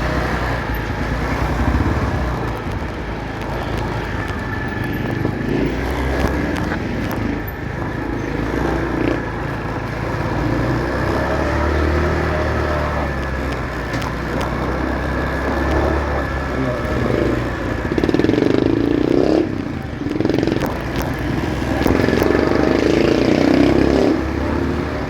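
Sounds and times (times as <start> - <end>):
motorcycle engine running: 0.0 - 25.0
road and traffic noise: 0.0 - 25.0.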